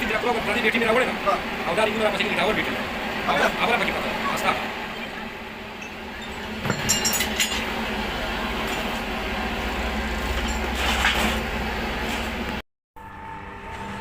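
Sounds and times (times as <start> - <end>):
low machine hum: 0.0 - 14.0
metal tools clinking: 5.8 - 7.7.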